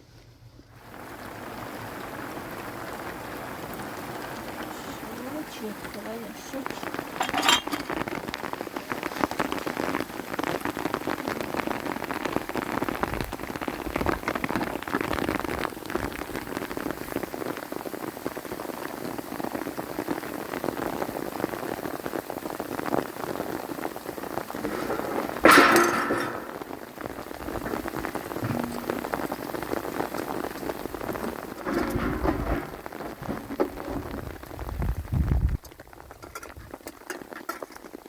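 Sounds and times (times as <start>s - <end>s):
rain falling: 0.0s - 38.0s
brief loud clatter: 24.7s - 26.6s, 31.2s - 34.1s.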